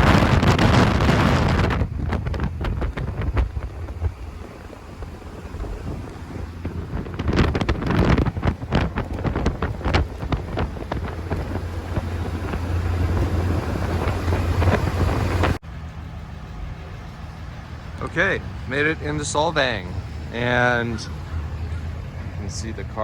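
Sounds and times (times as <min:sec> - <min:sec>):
wind buffeting microphone: 0:00.0 - 0:15.6, 0:16.6 - 0:23.0
car engine and road drone: 0:00.0 - 0:23.0.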